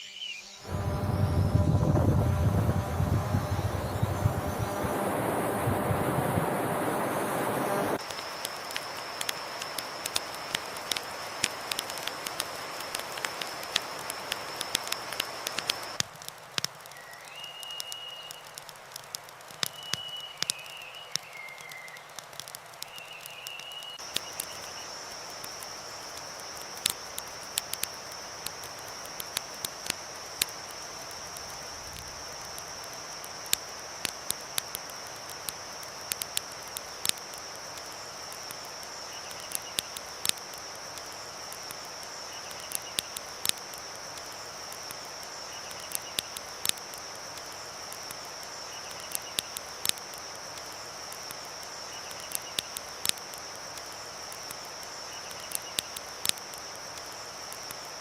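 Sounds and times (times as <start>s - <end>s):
high insect drone: 0.0s - 16.0s, 23.0s - 58.0s
campfire crackling: 0.6s - 58.0s
river rushing: 0.7s - 12.7s.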